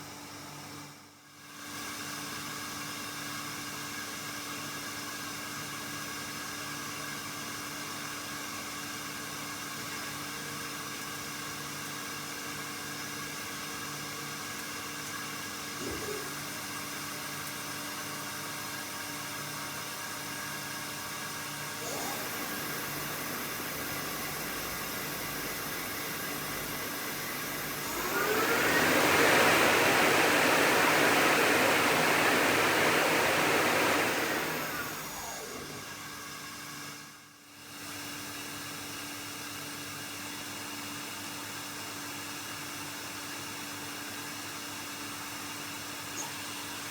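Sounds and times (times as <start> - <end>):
lathe spindle whine: 21.7 - 37.0
steady machine hum: 21.8 - 36.0
rush of air from spinning chuck: 21.8 - 36.2.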